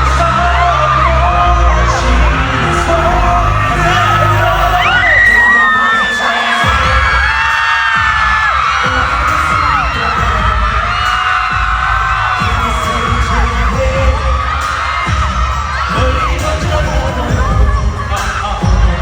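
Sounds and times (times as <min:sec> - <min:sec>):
crowd screaming and cheering: 0:00.0 - 0:19.0
loud pop music with pounding bass: 0:00.0 - 0:19.0.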